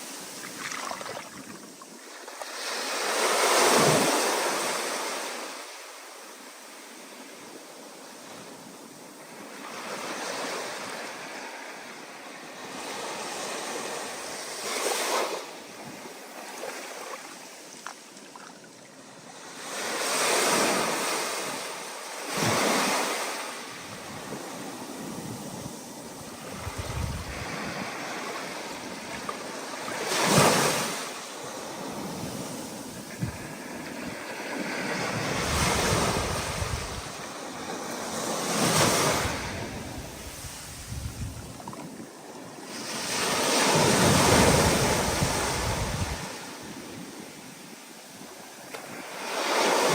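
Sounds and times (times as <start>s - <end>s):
wind over the microphone: 23.6s - 31.0s, 31.8s - 47.4s
ocean waves breaking: 25.8s - 46.6s.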